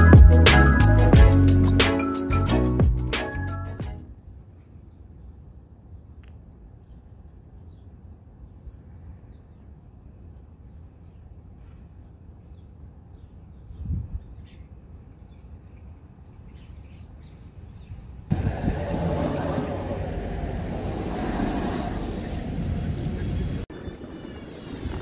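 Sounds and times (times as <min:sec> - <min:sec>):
small birds chirping: 0:04.4 - 0:18.2
steady low rumble: 0:18.3 - 0:25.0.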